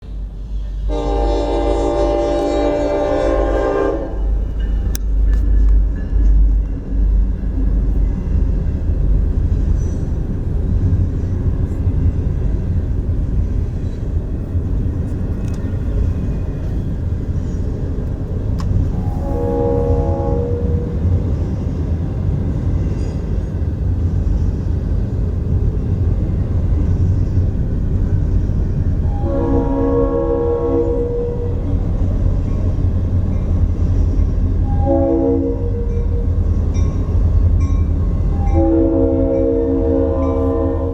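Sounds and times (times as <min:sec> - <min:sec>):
train rumbling on rails: 0:00.0 - 0:40.9
train horn: 0:00.7 - 0:04.5, 0:18.9 - 0:21.3, 0:29.0 - 0:31.8, 0:34.6 - 0:36.4, 0:38.3 - 0:40.9.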